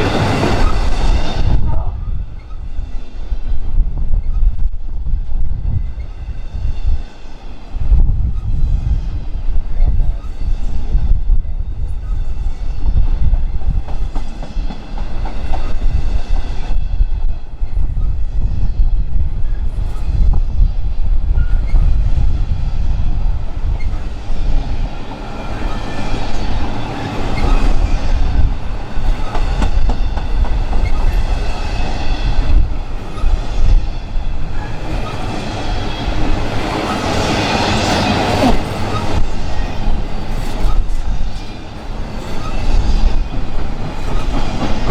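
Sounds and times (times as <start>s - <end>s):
train low rumble: 0.0s - 44.9s
train wheels clicking over rail joints: 13.4s - 17.4s, 23.5s - 44.9s.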